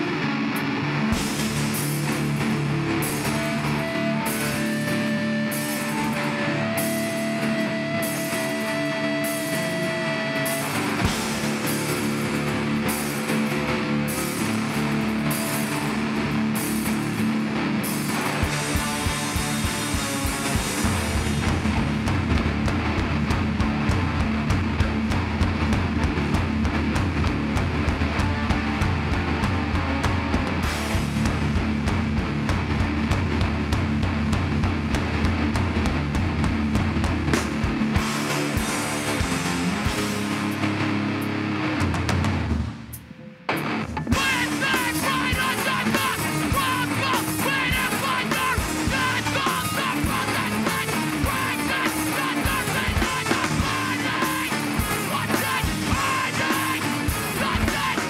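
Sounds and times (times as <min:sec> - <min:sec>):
electric guitars: 0:00.0 - 0:58.0
punk band playing live: 0:00.0 - 0:58.0
pounding drum kit: 0:01.0 - 0:58.0
shouted vocals: 0:44.2 - 0:58.0.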